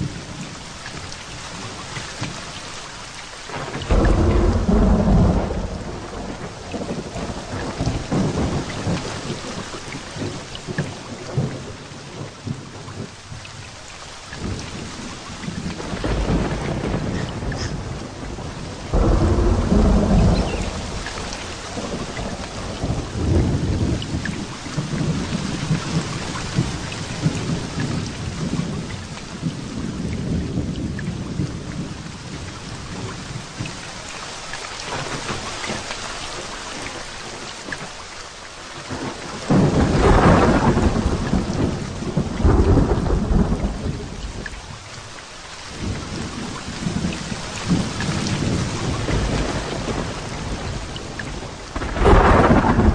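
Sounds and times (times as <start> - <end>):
heavy rain falling: 0.0 - 52.9
thunder rolling: 3.5 - 10.5, 14.4 - 32.0, 38.9 - 44.4, 46.0 - 52.9.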